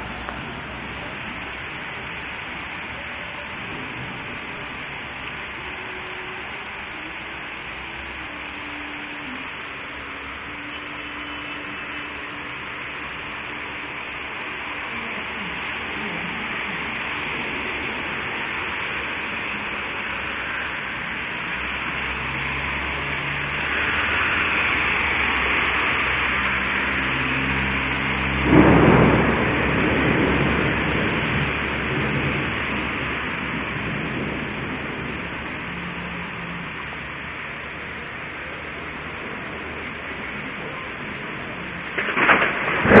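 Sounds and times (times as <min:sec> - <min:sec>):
steady rain: 0:00.0 - 0:43.0
thunder rumbling: 0:00.0 - 0:43.0
loud thunderclap: 0:27.0 - 0:36.4, 0:40.9 - 0:43.0.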